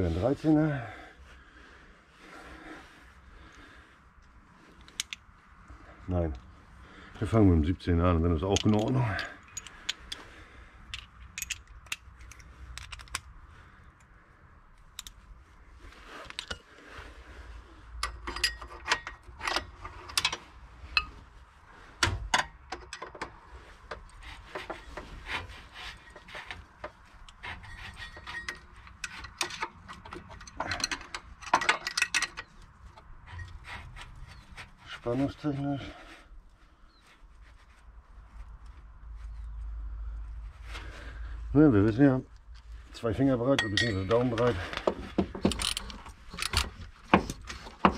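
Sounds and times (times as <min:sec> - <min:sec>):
spanner clinking on bolts: 0:08.4 - 0:10.2, 0:10.9 - 0:13.2, 0:18.0 - 0:20.4, 0:26.1 - 0:33.6, 0:43.5 - 0:47.9.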